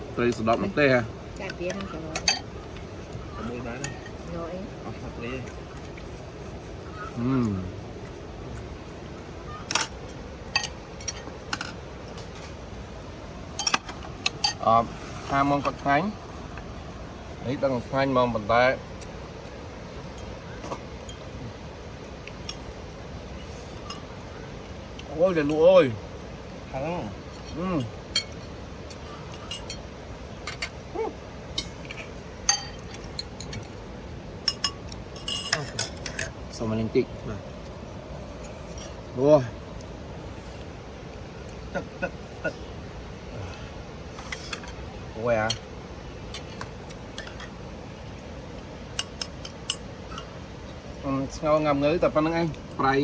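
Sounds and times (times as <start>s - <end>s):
steady background hiss: 0.0s - 53.0s
dishes and cutlery clinking: 1.7s - 2.5s, 9.7s - 12.5s, 13.6s - 14.7s, 27.4s - 28.6s, 29.3s - 30.8s, 31.5s - 33.7s, 34.4s - 36.4s, 46.3s - 47.6s, 48.9s - 50.3s.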